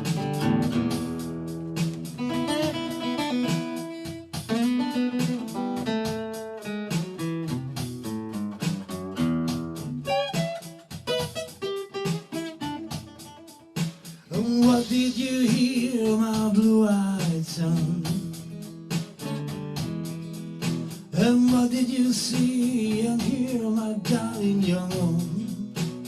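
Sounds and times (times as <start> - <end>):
guitar strumming and picking: 0.0 - 26.0.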